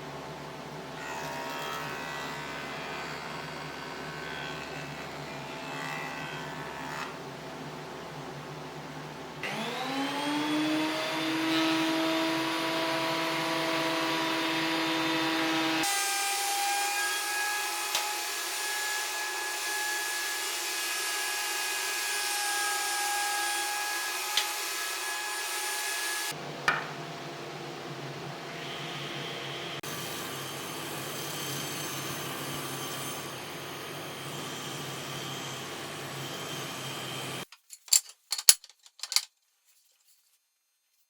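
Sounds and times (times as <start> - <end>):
lathe motor whining: 9.4 - 15.9.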